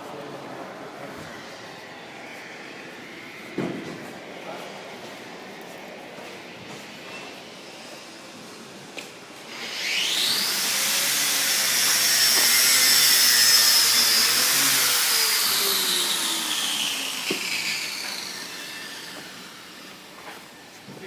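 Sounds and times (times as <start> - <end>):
jet aircraft passing by: 0.1 - 20.7.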